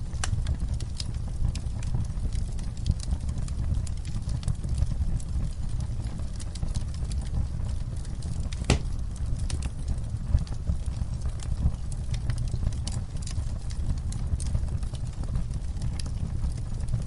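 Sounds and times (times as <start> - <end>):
wood fire crackling: 0.0 - 17.0
loud fire pop: 8.6 - 9.0.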